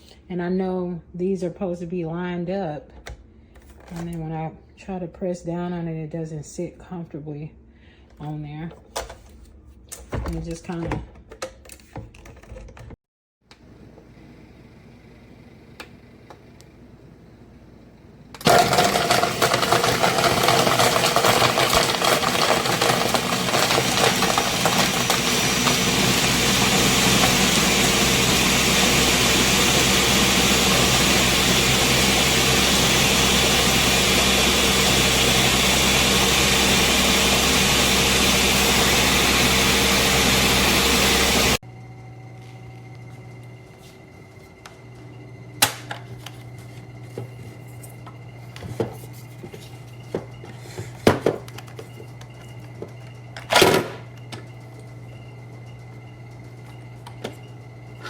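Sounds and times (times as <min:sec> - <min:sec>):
blender motor running: 0:18.4 - 0:41.8.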